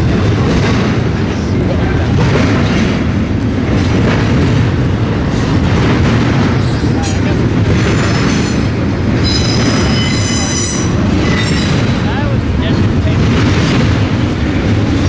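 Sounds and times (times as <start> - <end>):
freight train cars rumbling: 0.0 - 15.0
high-pitched wheel squeal: 7.8 - 12.0.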